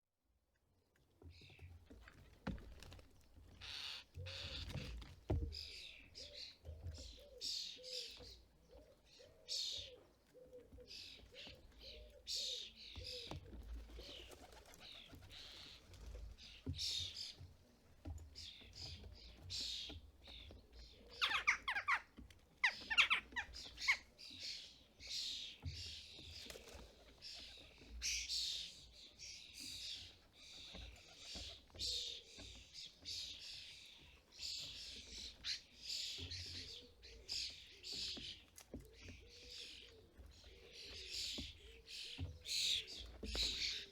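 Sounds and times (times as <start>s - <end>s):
starlings harsh raspy calls: 3.6s - 4.6s, 21.1s - 24.6s.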